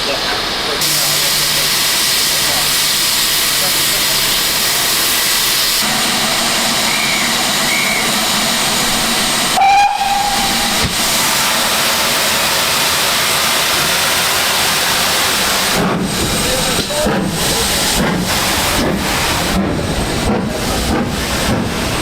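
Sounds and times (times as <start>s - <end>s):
steam locomotive hissing: 0.0s - 22.0s
locomotive whistle blast: 6.8s - 8.2s, 9.5s - 10.8s.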